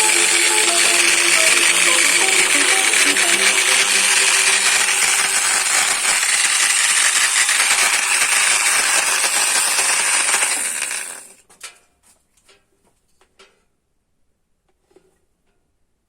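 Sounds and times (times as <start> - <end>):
electric multi-tool running: 0.0 - 11.4.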